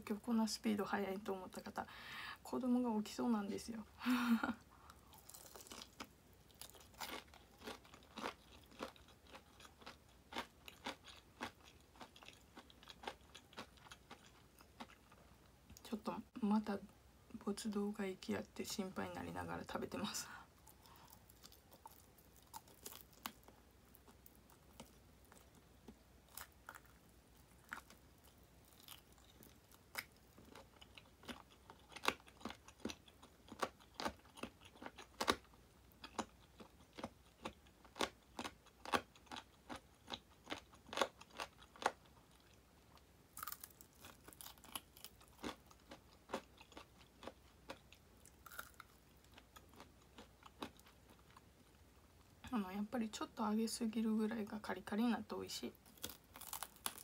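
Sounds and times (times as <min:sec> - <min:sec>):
crunching fried chicken: 0:05.0 - 0:15.1, 0:20.7 - 0:42.6, 0:43.3 - 0:51.4, 0:55.8 - 0:57.0.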